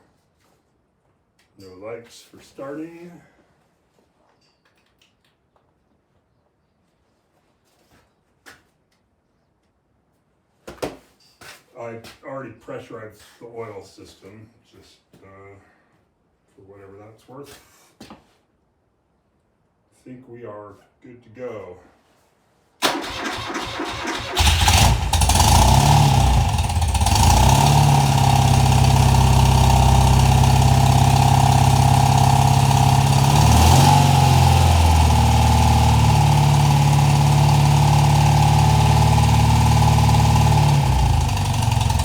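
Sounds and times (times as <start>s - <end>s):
electric starter cranking: 22.8s - 42.0s
motorcycle engine idling: 24.3s - 42.0s.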